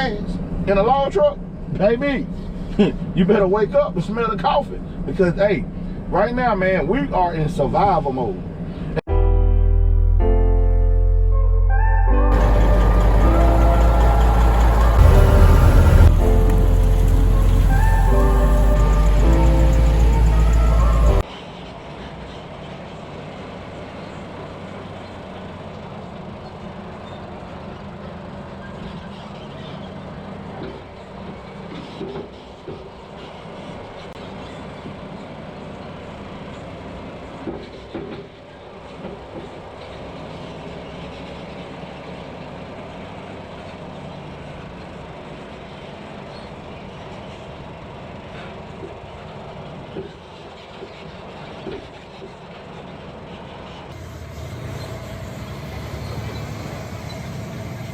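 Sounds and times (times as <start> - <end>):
truck diesel engine running: 12.3 - 21.2, 43.0 - 57.9.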